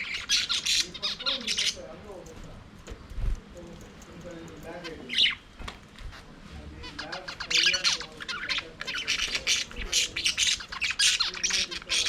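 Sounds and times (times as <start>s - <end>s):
budgerigars chattering and squawking: 0.0s - 2.1s, 4.6s - 5.5s, 6.1s - 12.0s.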